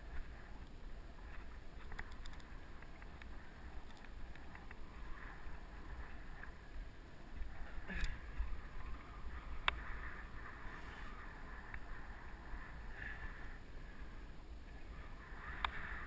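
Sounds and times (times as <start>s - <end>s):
bike tyres on dirt trail: 0.0s - 16.0s
wind rumbling on camera: 0.0s - 16.0s
small clicks and rattles: 0.6s - 4.8s.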